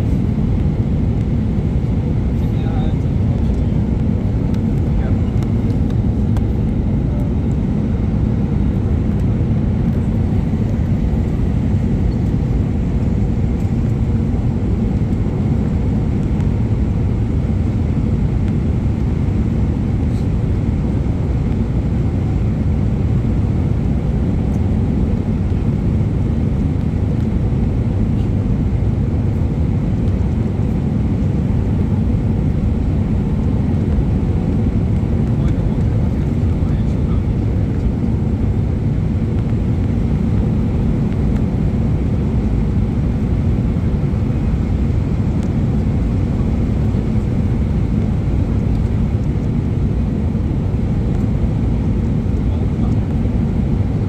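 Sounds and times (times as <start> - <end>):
airliner engines rumbling: 0.0 - 54.0.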